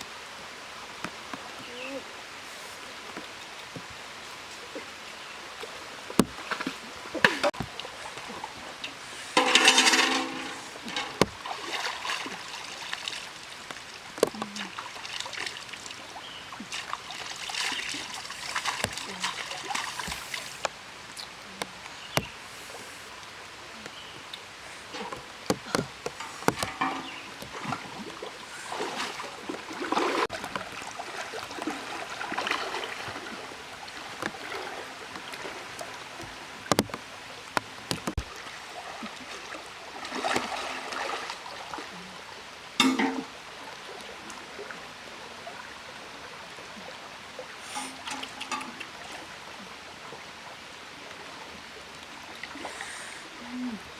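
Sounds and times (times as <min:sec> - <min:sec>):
river water running: 0:00.0 - 0:53.9
sharp knocks: 0:25.0 - 0:27.6, 0:36.7 - 0:37.0.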